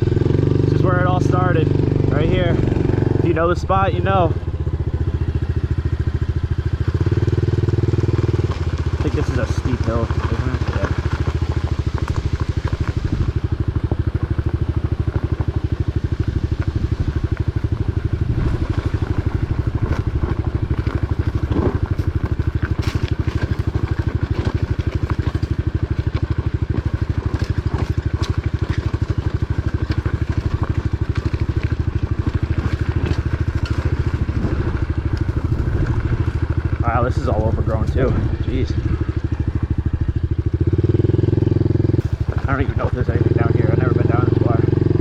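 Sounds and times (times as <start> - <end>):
small motorcycle engine running: 0.0 - 45.0
faint ticks and crackles: 5.6 - 39.7.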